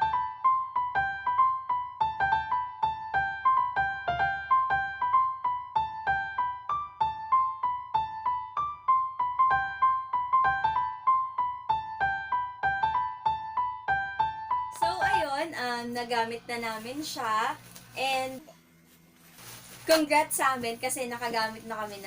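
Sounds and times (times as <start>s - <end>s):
plucky piano melody: 0.0s - 16.9s.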